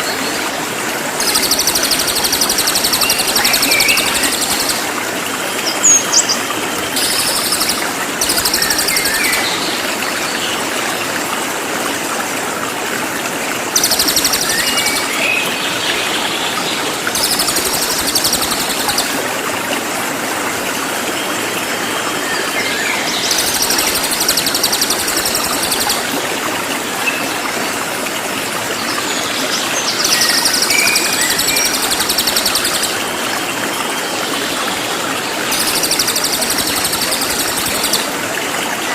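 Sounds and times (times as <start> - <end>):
rushing water: 0.0 - 38.9
songbird singing rapidly: 1.2 - 4.9, 5.6 - 9.6, 13.8 - 15.5, 17.1 - 19.2, 23.2 - 26.1, 30.0 - 33.0, 35.5 - 38.1.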